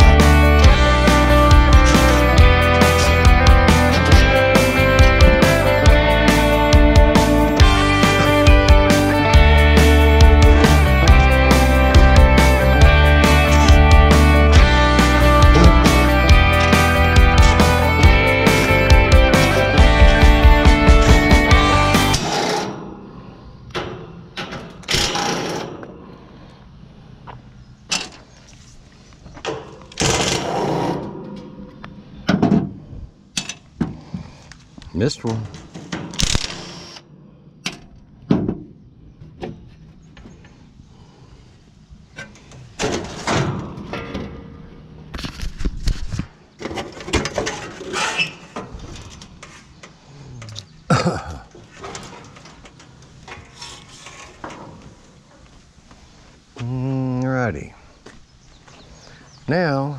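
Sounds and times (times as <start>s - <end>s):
metal clanks and knocks: 29.4s - 34.0s, 42.1s - 44.7s, 46.6s - 50.0s
power driver whirring: 36.2s - 37.0s
metal scrap parts clanking: 46.6s - 49.6s.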